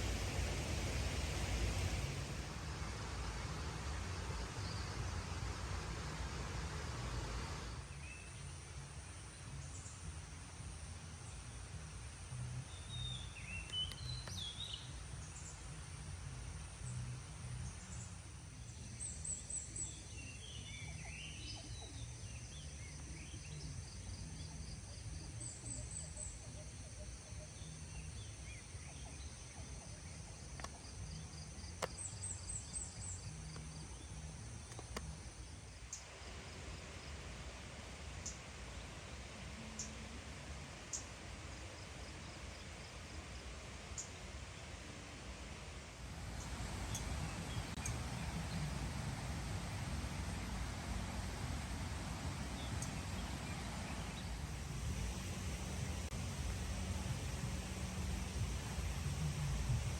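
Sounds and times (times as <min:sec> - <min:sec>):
insects buzzing: 0:00.0 - 0:08.2, 0:46.0 - 0:59.9
low steady rumble: 0:00.0 - 0:43.9, 0:44.5 - 0:59.9.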